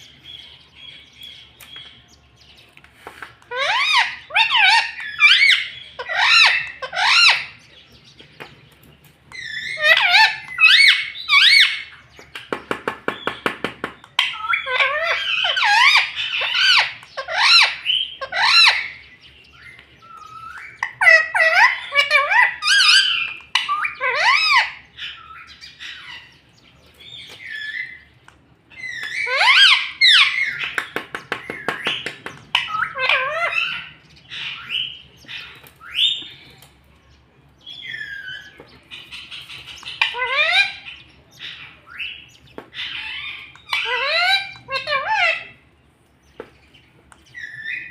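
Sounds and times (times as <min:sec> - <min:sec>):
parrot chirps and squawks: 0:03.4 - 0:07.6, 0:09.4 - 0:12.0, 0:14.2 - 0:19.0, 0:20.1 - 0:26.4, 0:28.7 - 0:30.9, 0:31.6 - 0:36.4, 0:37.8 - 0:45.6.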